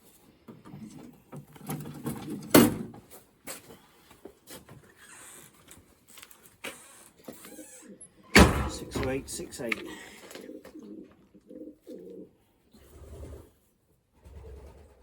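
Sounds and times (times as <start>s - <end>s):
pigeons being handled rustling: 0.0s - 12.3s.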